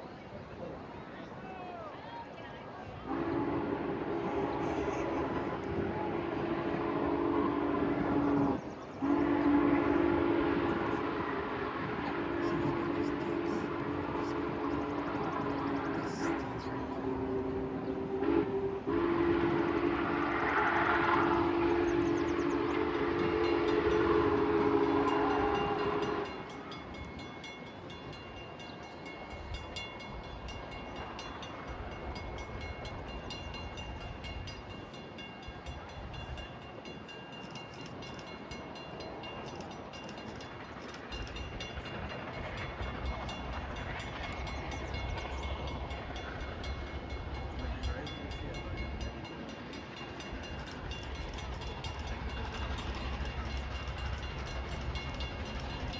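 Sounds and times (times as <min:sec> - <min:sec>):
train rumbling past: 0:00.0 - 0:55.9
train whistle: 0:03.0 - 0:26.9.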